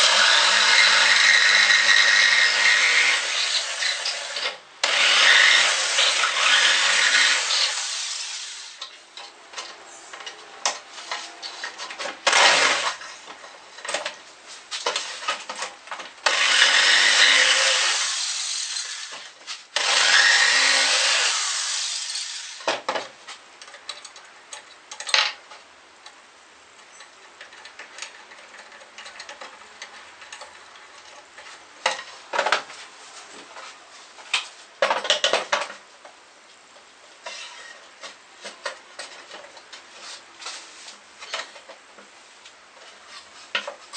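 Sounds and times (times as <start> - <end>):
power tool running: 0.0 - 8.8, 12.2 - 13.0, 16.2 - 22.6
knocks and clatter of tools and wood: 8.8 - 16.4, 22.6 - 43.9.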